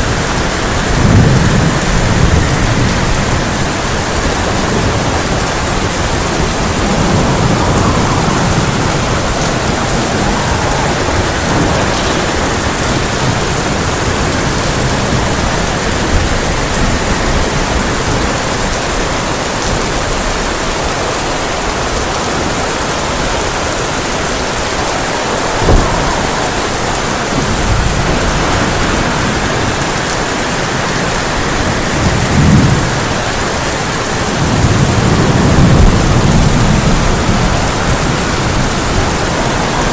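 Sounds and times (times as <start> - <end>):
heavy rain on a tin roof: 0.0 - 39.9
thunder rumbling: 0.0 - 39.9
sharp thunder crack: 0.8 - 17.4, 23.4 - 33.1.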